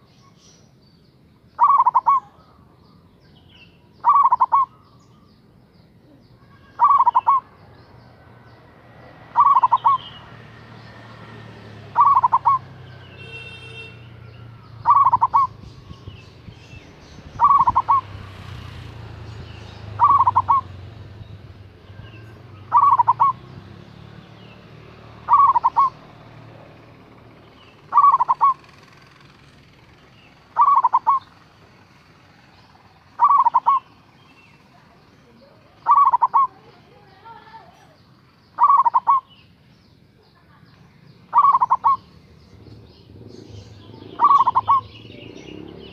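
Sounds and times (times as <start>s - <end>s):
dove cooing: 1.6s - 2.4s, 4.0s - 5.0s, 6.8s - 7.6s, 9.3s - 10.2s, 11.6s - 13.4s, 14.7s - 16.2s, 17.3s - 18.2s, 19.3s - 20.8s, 22.1s - 23.5s, 25.0s - 26.8s, 27.8s - 28.9s, 30.4s - 31.3s, 33.2s - 33.9s, 35.6s - 36.8s, 38.6s - 39.3s, 41.3s - 45.9s.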